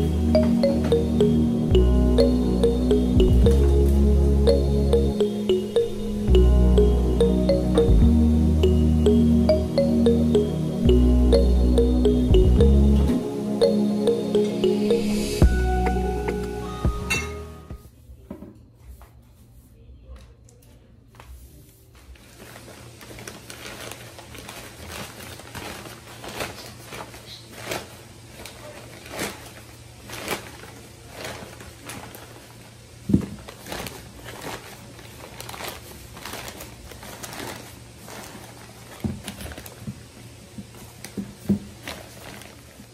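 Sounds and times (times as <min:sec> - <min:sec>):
paper bags crinkling: 0:22.1 - 0:39.8, 0:41.7 - 0:42.9.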